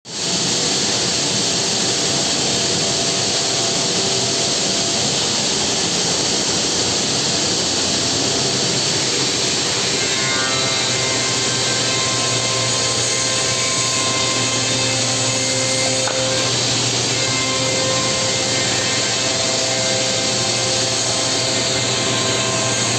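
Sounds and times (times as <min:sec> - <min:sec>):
cnc spindle cutting wood: 0:00.2 - 0:22.9
steady tones: 0:06.4 - 0:22.9.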